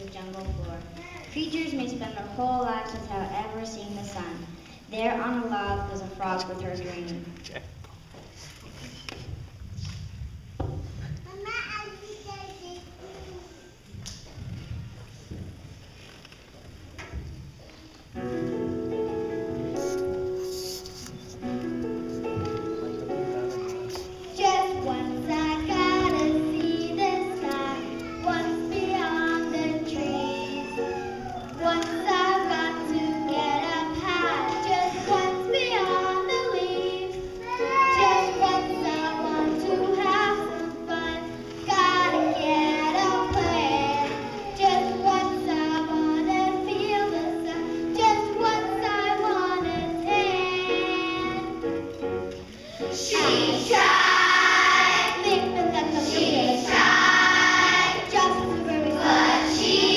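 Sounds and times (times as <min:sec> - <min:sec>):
instrumental backing music: 0:17.0 - 0:59.9
children singing: 0:23.4 - 0:51.7, 0:52.6 - 0:59.9.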